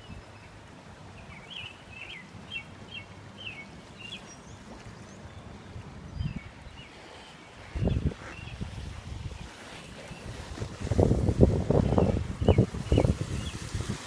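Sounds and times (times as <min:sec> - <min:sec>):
fast-moving creek rushing: 0:00.0 - 0:14.0
bird chirping: 0:01.2 - 0:08.7, 0:11.8 - 0:13.6.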